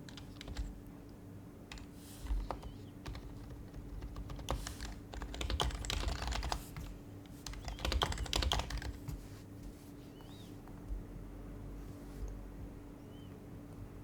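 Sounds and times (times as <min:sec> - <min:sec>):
soft keyboard typing: 0:00.0 - 0:11.0.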